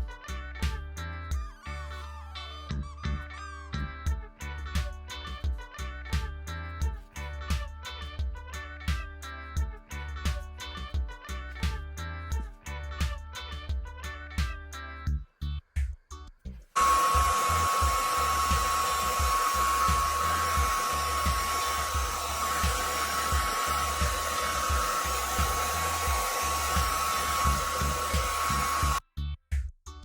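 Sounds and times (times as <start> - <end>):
hair dryer blowing: 16.8 - 29.0
low music beat: 16.8 - 30.0.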